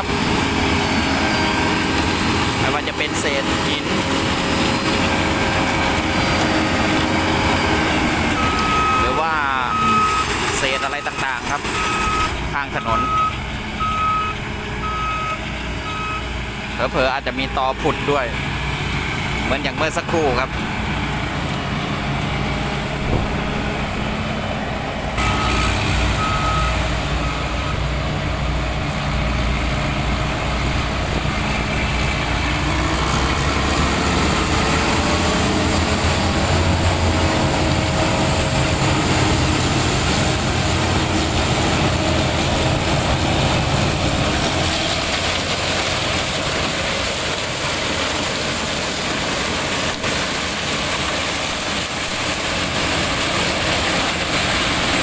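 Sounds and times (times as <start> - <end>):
heavy vehicle engine running: 0.0 - 55.0
short beeps: 8.4 - 16.2, 26.2 - 27.8.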